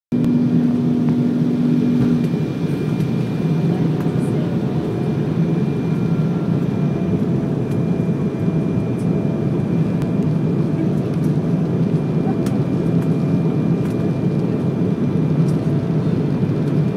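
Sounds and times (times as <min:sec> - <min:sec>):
steady hum: 0:00.1 - 0:13.5
airliner engine rumble: 0:00.1 - 0:16.9.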